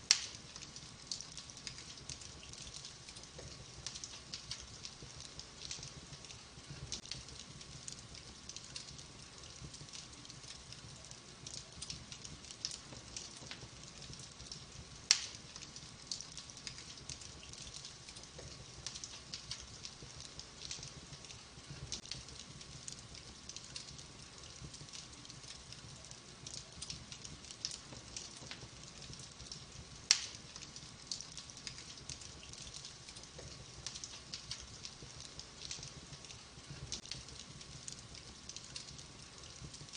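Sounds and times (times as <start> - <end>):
fire crackling: 0.0 - 39.9
sharp loud pops of fire: 15.1 - 15.4, 30.1 - 30.5.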